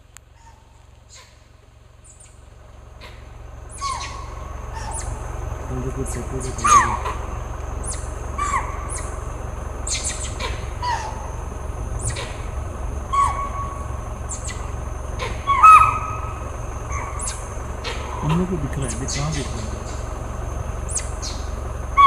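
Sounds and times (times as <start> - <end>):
low steady rumble: 0.0 - 22.0
high-pitched hum: 3.1 - 22.0.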